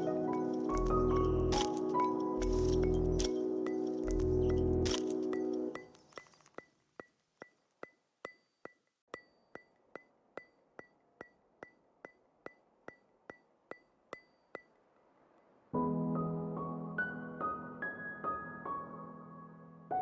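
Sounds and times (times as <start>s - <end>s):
soft ticks in background music: 0.0s - 6.4s.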